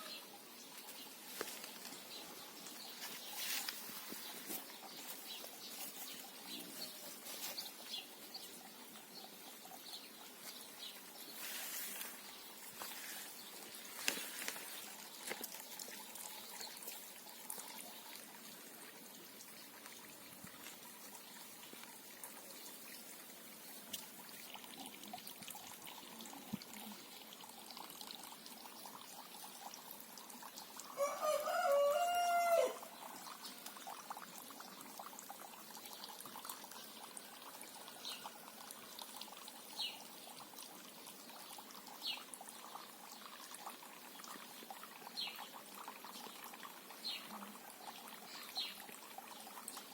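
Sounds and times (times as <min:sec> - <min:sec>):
water trickling: 0:00.0 - 0:49.9
rooster crowing: 0:31.0 - 0:32.9.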